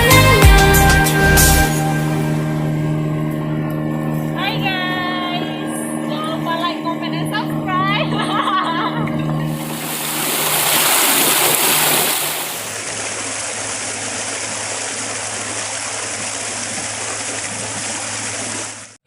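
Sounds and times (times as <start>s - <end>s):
low motor hum: 0.0s - 19.0s
rushing water: 9.5s - 19.0s.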